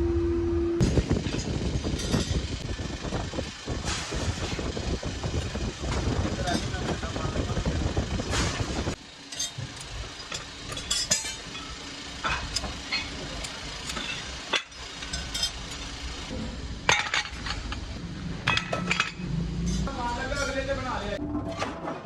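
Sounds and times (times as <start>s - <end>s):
steady low rumble: 0.0s - 20.1s
metal pieces clinking and knocking: 1.3s - 2.5s, 9.3s - 16.0s, 16.9s - 17.9s, 18.5s - 20.6s.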